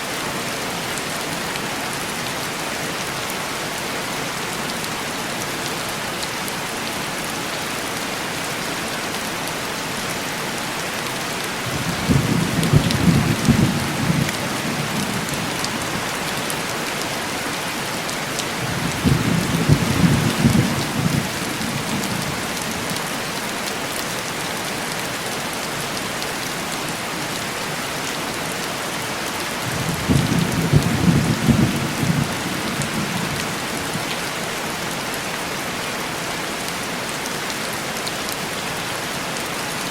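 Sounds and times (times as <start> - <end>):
heavy rain on window glass: 9.0 - 35.4.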